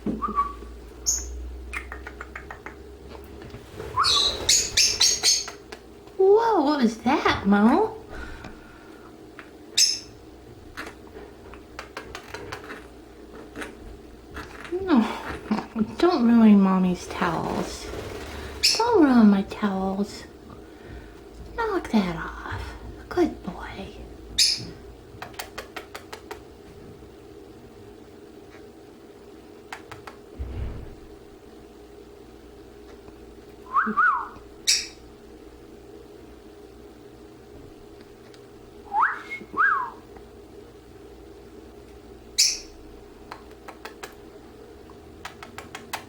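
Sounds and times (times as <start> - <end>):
faint steady hum: 0.0 - 46.0
parakeet high-pitched call: 4.0 - 5.6, 9.8 - 10.2, 24.4 - 24.7, 34.2 - 35.0, 42.4 - 42.8
soft low thump: 30.4 - 31.3.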